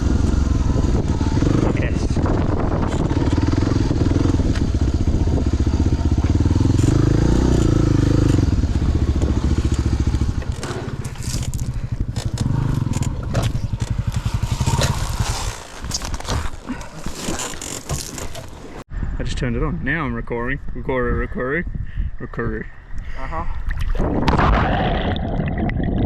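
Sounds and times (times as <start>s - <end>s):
motorcycle engine running: 0.0s - 18.8s
tyres crunching on gravel: 9.4s - 18.8s.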